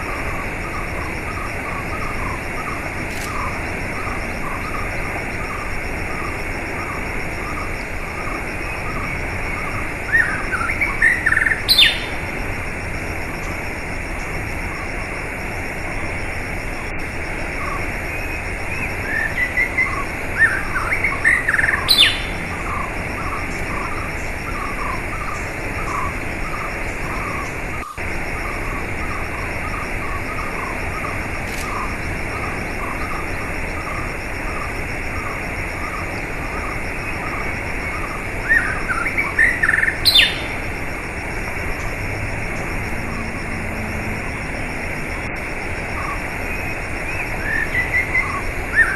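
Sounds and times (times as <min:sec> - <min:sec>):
small birds chirping: 0:00.0 - 0:12.4, 0:17.5 - 0:40.7, 0:45.8 - 0:48.9
flowing water: 0:00.0 - 0:48.9
bird twittering phrase: 0:00.6 - 0:12.2, 0:17.6 - 0:32.0, 0:32.8 - 0:40.6.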